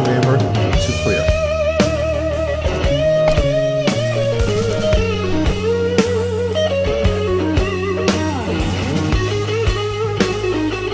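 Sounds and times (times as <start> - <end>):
electric guitar lead: 0.5 - 10.9
bass line: 2.4 - 6.1
drum beat: 2.8 - 5.7.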